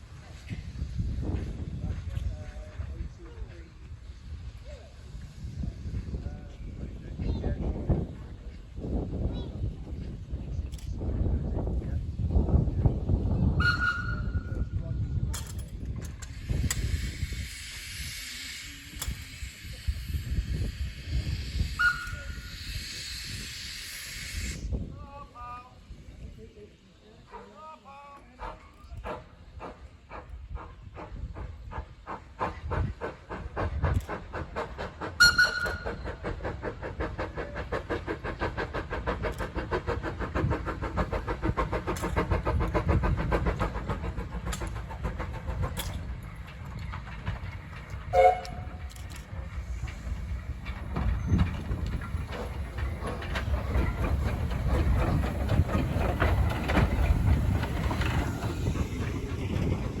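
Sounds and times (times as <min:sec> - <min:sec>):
steam locomotive exhaust beats: 0:00.0 - 0:27.6, 0:28.2 - 1:00.0
train running rumble: 0:00.0 - 1:00.0
steam whistle: 0:13.6 - 0:14.4, 0:21.8 - 0:22.5, 0:35.2 - 0:35.8, 0:48.1 - 0:48.7.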